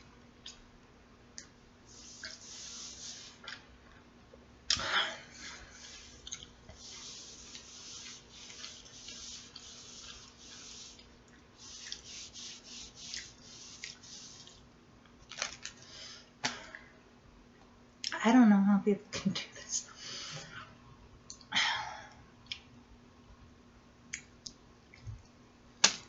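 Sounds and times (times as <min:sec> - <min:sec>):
faint steady hum: 0:00.0 - 0:26.0
person chewing sandwich: 0:05.4 - 0:06.8.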